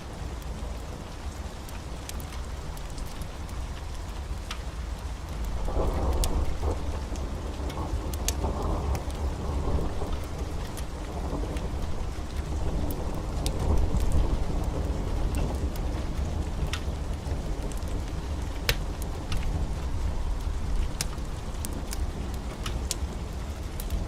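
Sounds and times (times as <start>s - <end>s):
heavy rain: 0.0s - 24.0s
sharp crackles: 5.3s - 24.0s
thunder rumbling: 5.4s - 24.0s.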